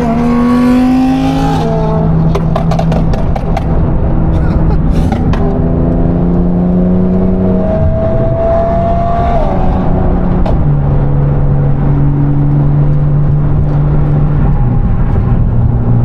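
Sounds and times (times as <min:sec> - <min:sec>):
sports car engines: 0:00.0 - 0:16.0
exhaust crack: 0:02.1 - 0:06.5.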